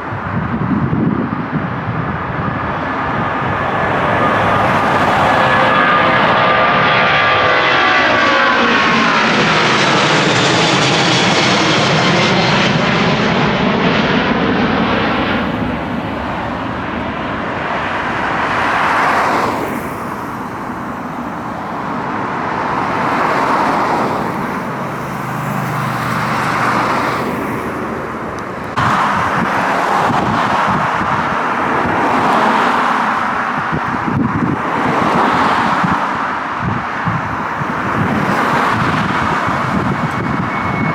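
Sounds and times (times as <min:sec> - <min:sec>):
jet airliner roar overhead: 0:00.0 - 0:40.9.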